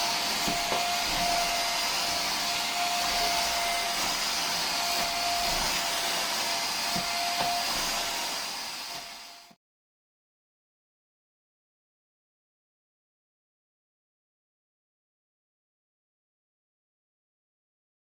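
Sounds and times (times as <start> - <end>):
vacuum cleaner whirring: 0.0 - 9.6.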